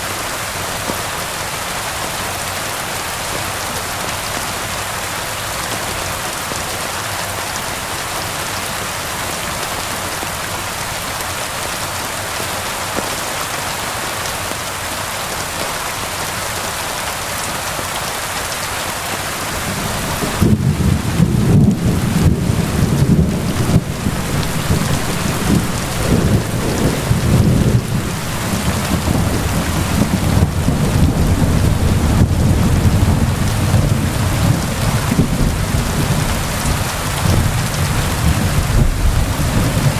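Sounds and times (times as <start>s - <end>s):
steady rain falling: 0.0s - 39.9s
low rolling thunder: 19.5s - 39.9s.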